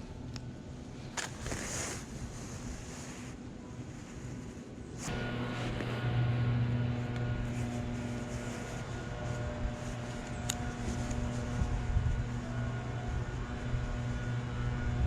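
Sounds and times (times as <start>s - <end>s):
engine hum: 4.8s - 15.0s.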